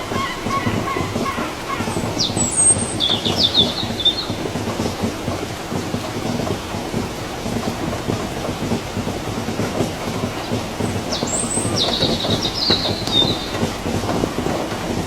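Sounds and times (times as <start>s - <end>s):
steady rain patter: 0.0s - 15.0s
bird chirping: 1.9s - 4.4s, 11.1s - 13.6s.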